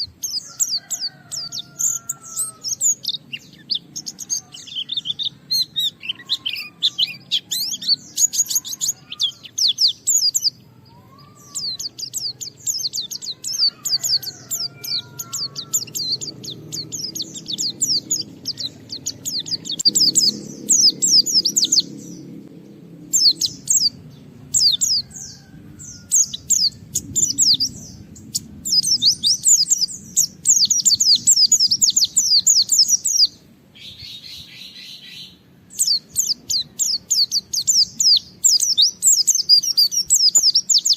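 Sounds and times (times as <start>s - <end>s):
bird chattering song: 0.0s - 40.9s
faint low rumble: 11.4s - 34.5s.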